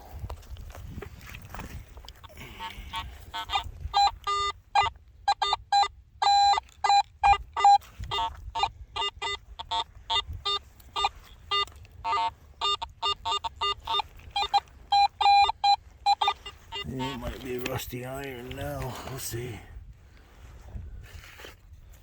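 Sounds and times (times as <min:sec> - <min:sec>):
metal detector beeps: 0:02.4 - 0:19.5.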